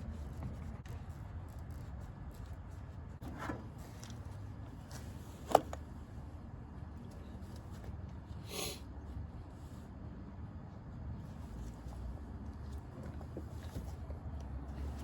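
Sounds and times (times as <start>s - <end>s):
faint scrapes and handling noises: 11.1s - 15.0s.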